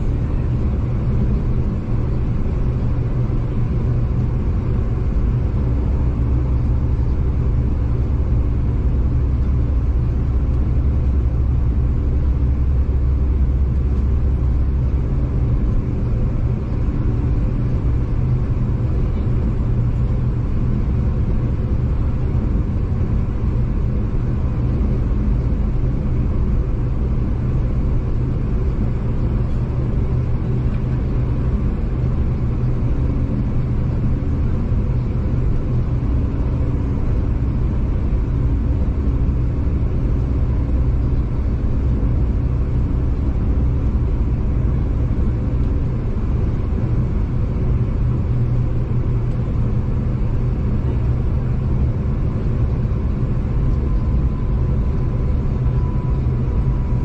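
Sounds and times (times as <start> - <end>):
faint steady hum: 0.0 - 57.0
train rumbling from inside carriage: 0.0 - 57.0.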